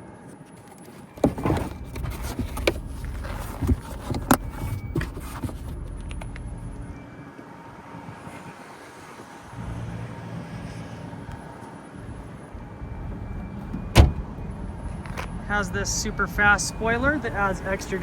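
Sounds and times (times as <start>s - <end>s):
low steady background rumble: 1.2s - 7.0s, 9.6s - 18.0s
thump in car trunk: 13.9s - 14.2s.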